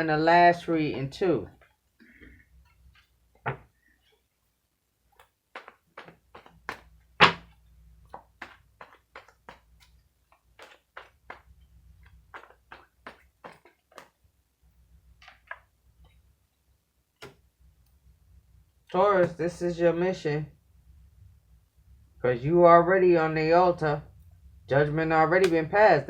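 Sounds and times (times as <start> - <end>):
cards tapping on tabletop: 12.3 - 14.1.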